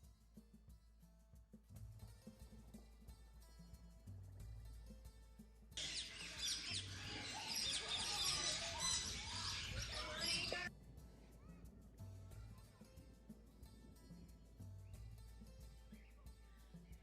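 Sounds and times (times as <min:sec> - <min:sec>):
soft background music: 0:00.0 - 0:17.0
flock of birds chirping: 0:05.8 - 0:10.7.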